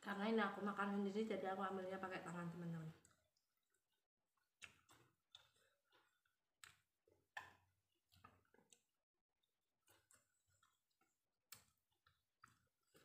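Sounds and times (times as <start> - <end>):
wet chewing clicks and smacks: 3.0 - 13.0.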